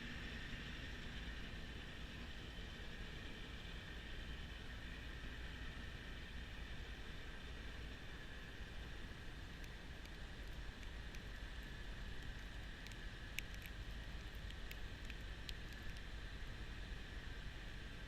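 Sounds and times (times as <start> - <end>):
sharp ticks: 9.4 - 16.3.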